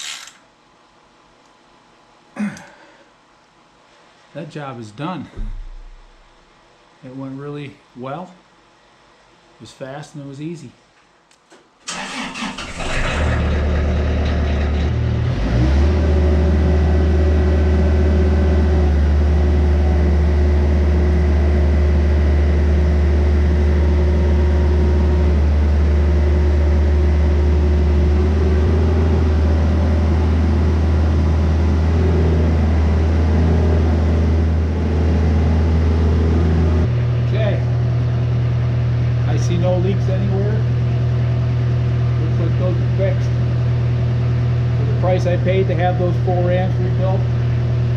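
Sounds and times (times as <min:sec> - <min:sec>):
excavator diesel engine starting: 0:11.9 - 0:37.9.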